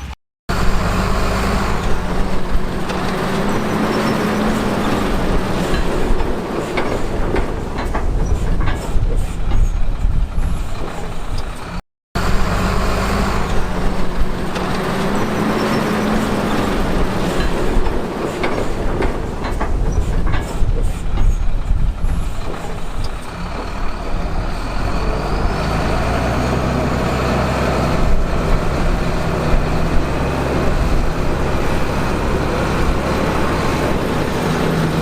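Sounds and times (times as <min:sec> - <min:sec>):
diesel machinery engine drone: 0:00.0 - 0:35.0
rock and steel clatter: 0:00.5 - 0:11.8, 0:13.2 - 0:26.4.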